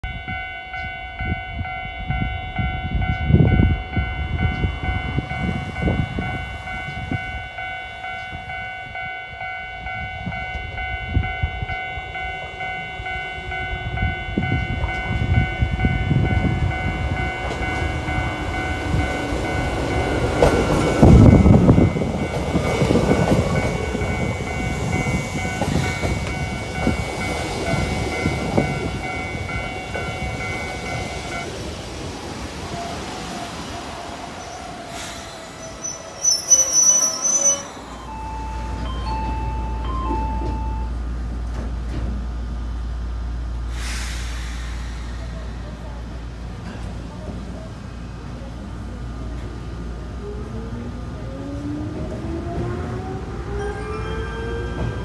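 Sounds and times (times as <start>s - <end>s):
level crossing alarm ringing: 0.0s - 31.5s, 35.6s - 41.0s
electric train approaching: 0.0s - 55.0s.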